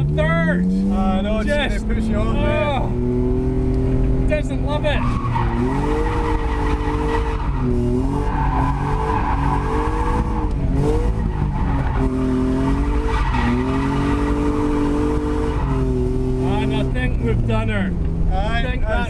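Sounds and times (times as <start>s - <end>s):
car engine revving: 0.0s - 19.0s
tyres squealing: 4.4s - 17.1s.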